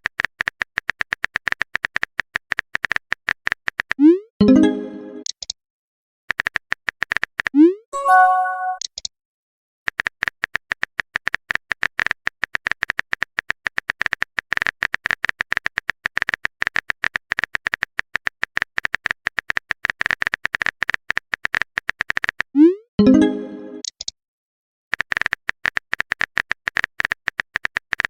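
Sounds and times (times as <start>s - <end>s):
rapid high clicks: 6.3s - 7.6s, 9.9s - 22.5s, 24.9s - 28.0s.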